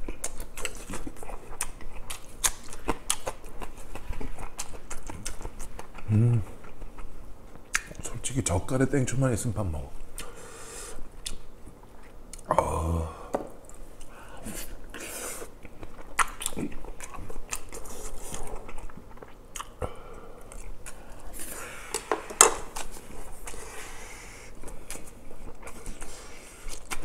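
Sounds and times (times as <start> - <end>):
person chewing: 0.0 - 8.1, 10.1 - 12.9, 13.6 - 27.0
person humming: 6.1 - 6.5, 12.5 - 13.4.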